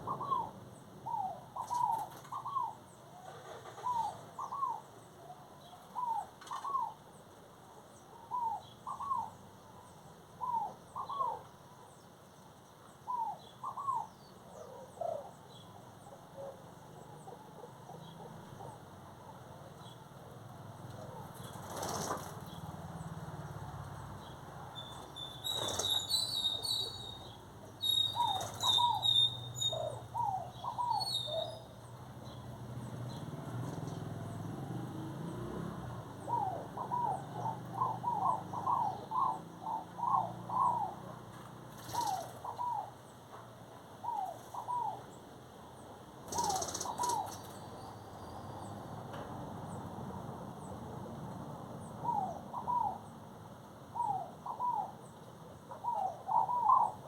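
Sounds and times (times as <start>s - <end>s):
birds whistling: 0.0s - 4.9s, 8.3s - 9.4s, 10.4s - 11.5s, 13.1s - 15.7s, 24.2s - 32.5s, 36.2s - 41.0s, 41.8s - 42.9s, 46.3s - 48.9s, 52.0s - 53.1s, 54.0s - 55.1s, 55.7s - 57.0s
high bird chirps: 24.8s - 31.7s.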